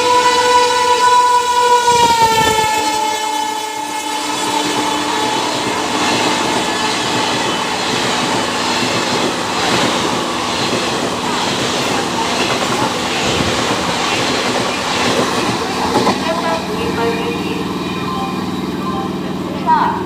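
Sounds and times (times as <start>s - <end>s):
train horn: 0.0s - 8.8s
train wheels clattering on rails: 4.3s - 17.8s.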